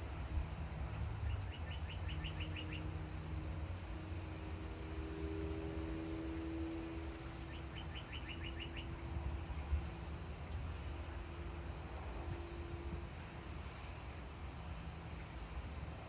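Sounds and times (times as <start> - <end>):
songbird calling: 1.3 - 2.9, 7.5 - 10.0.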